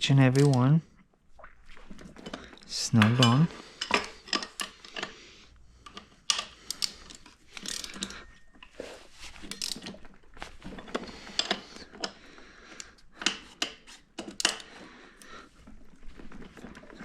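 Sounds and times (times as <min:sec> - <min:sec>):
metallic clicks of tightening bolts: 0:00.3 - 0:00.7, 0:05.8 - 0:08.8, 0:09.5 - 0:10.0.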